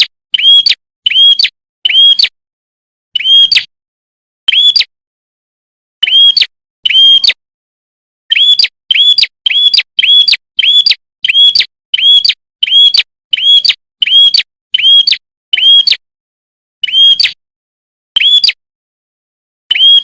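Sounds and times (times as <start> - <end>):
bird chirping: 0.0 - 2.3, 3.2 - 3.7, 4.5 - 4.9, 6.0 - 7.4, 8.3 - 16.0, 16.8 - 17.4, 18.2 - 18.6, 19.7 - 20.0.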